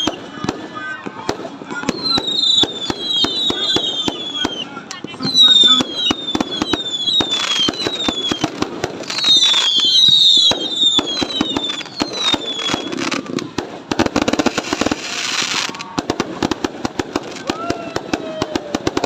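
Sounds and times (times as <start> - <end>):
fireworks whistles falling in pitch: 0.0 - 0.9, 1.6 - 13.4
fireworks bangs and crackling: 0.0 - 19.0.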